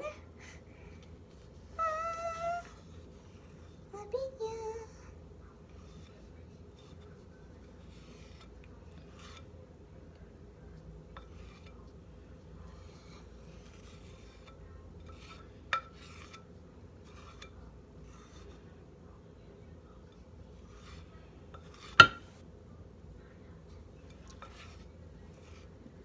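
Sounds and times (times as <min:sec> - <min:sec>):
utensil scraping batter in bowl: 0:05.5 - 0:09.6, 0:10.7 - 0:18.9, 0:19.9 - 0:22.4, 0:23.7 - 0:26.0.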